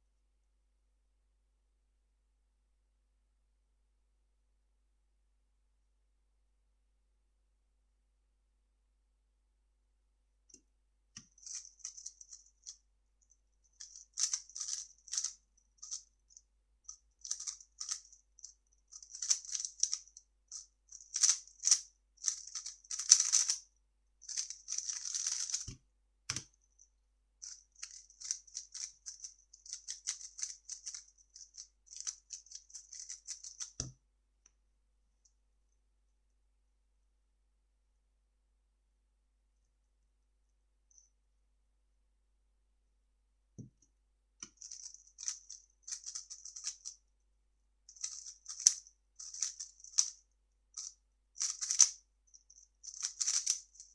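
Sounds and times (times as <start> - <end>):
plastic puzzle cube clicking: 21.1 - 23.6, 24.3 - 25.7, 51.4 - 51.9, 52.9 - 53.6.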